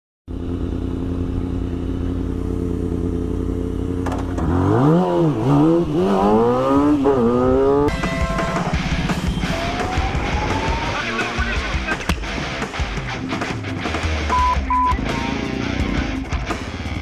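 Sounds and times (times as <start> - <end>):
different engine sound: 0.3 - 17.0
motorcycle engine idling and revving: 0.3 - 17.0.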